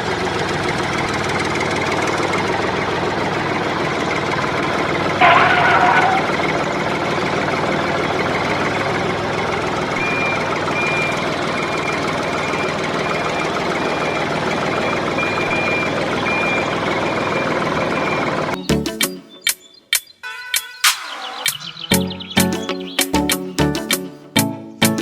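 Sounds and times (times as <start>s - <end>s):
mini tractor engine rattling: 0.0s - 18.6s
high reversing beep: 10.0s - 18.4s, 20.2s - 22.5s.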